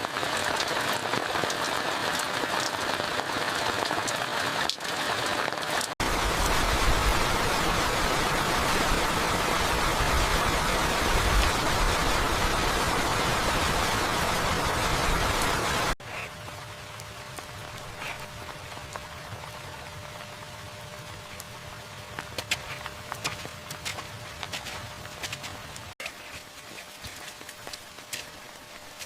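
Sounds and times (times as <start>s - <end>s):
heavy rain pouring: 0.0s - 22.9s.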